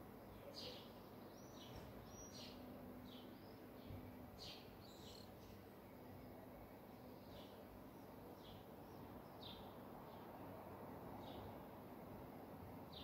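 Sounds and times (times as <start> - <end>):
low steady hiss: 0.0 - 13.0
bird chirps: 0.4 - 5.6.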